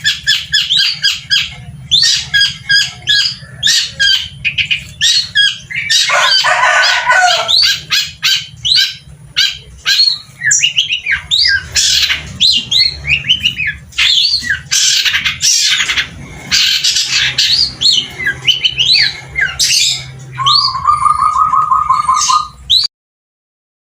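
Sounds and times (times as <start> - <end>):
harsh rasping bird calls: 0.0 - 22.9
bird singing chirps and whistles: 7.4 - 16.0, 16.6 - 22.9.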